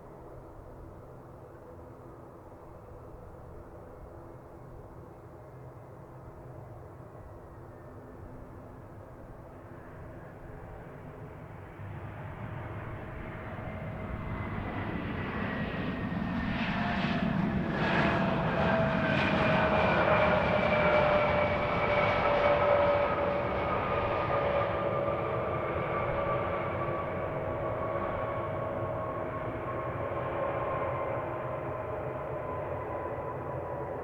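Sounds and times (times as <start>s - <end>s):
jet engines passing: 14.0s - 34.0s.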